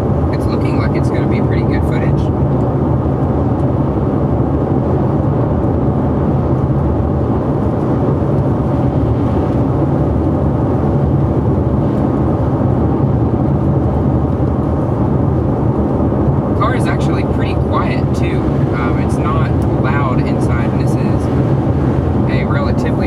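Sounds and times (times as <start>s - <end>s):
low engine drone: 0.0s - 23.0s
tyre noise on wet road: 5.9s - 23.0s.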